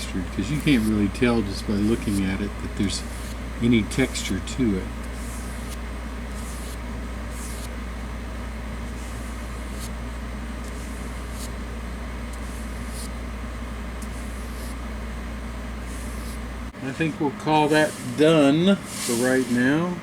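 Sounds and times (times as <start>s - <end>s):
paintbrush scratchy swishes: 0.0s - 7.7s, 8.9s - 10.0s, 10.6s - 11.6s, 12.3s - 13.2s, 14.0s - 14.8s, 15.8s - 16.4s, 17.5s - 19.8s
steady low hum: 0.0s - 20.0s.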